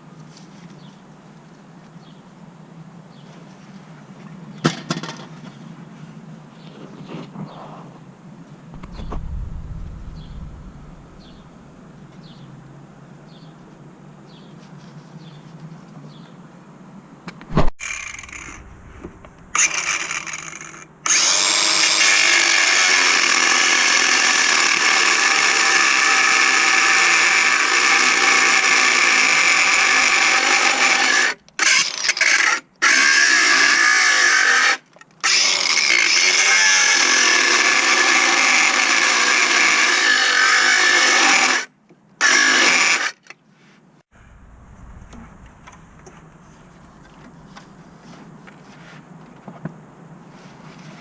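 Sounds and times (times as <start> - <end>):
power tool motor running: 17.8 - 18.6, 19.5 - 32.3.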